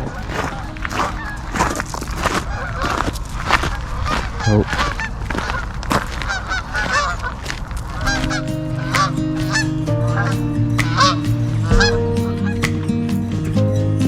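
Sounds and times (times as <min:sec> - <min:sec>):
geese honking: 0:02.4 - 0:03.0, 0:08.0 - 0:12.6
background music with held notes: 0:08.0 - 0:14.0.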